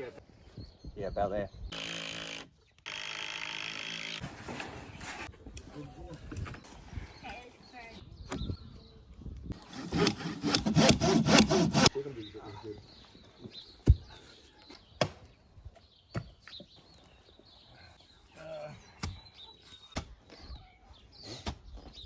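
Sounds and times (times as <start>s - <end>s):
saw cutting wood: 1.8s - 4.2s, 9.6s - 11.9s.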